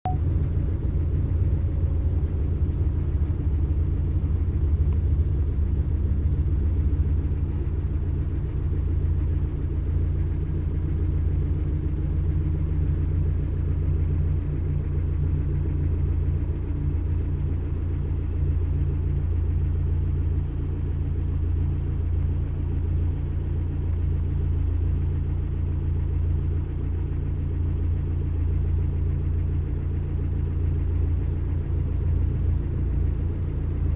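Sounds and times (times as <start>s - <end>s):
low rumble with faint hum: 0.0s - 33.9s.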